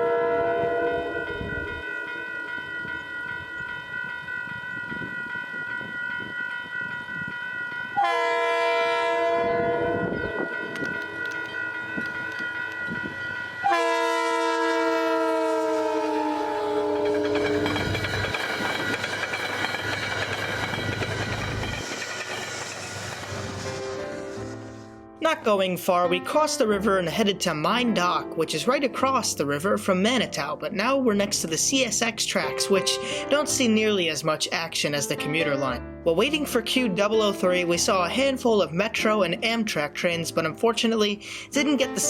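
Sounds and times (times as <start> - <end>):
train horn chord: 0.0 - 2.2, 8.0 - 17.8
train rushing over rails: 0.0 - 25.0.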